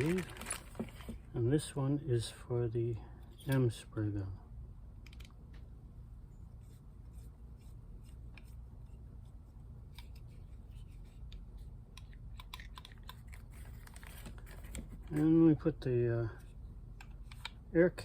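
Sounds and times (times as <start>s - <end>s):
small clicks and rubbing: 9.9s - 15.4s.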